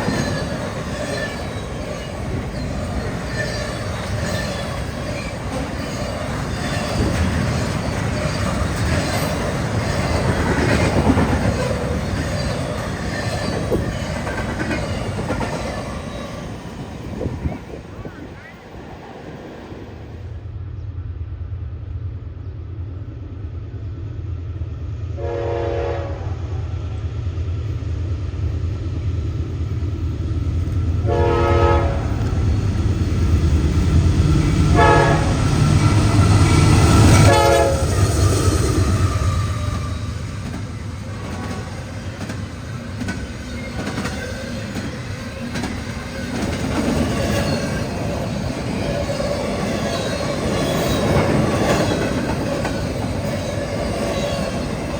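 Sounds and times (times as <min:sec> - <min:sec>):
wheels clacking over rail joints: 0:00.0 - 0:18.5, 0:32.1 - 0:54.9
low train rumble: 0:00.0 - 0:54.9
train horn blasts: 0:25.2 - 0:26.7, 0:31.0 - 0:32.4, 0:34.7 - 0:35.7, 0:37.0 - 0:38.2.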